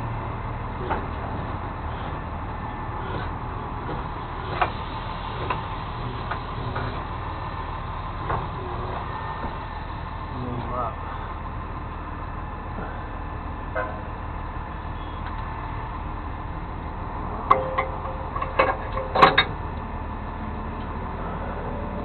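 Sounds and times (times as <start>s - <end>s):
vehicle engine idling: 0.0s - 22.0s
sharp knocks: 17.5s - 19.5s.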